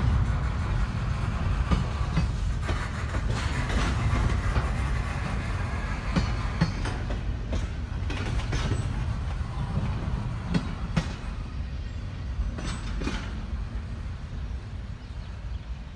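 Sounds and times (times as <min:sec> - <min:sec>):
train low rumble: 0:00.0 - 0:15.9
wheel clicks over rail joints: 0:01.6 - 0:09.4, 0:12.5 - 0:13.6.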